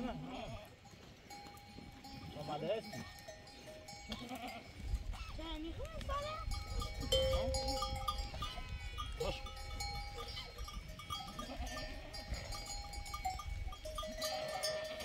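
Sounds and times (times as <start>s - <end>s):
sheep bleating: 0.0s - 0.8s, 4.1s - 4.8s, 7.1s - 9.6s, 11.3s - 12.4s, 14.2s - 15.0s
animal bells ringing: 0.0s - 15.0s.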